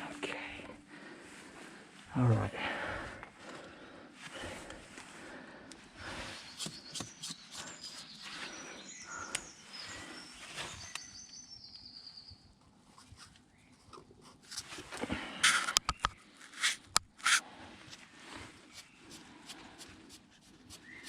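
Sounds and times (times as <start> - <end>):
bird chirping and trilling: 6.4 - 12.4.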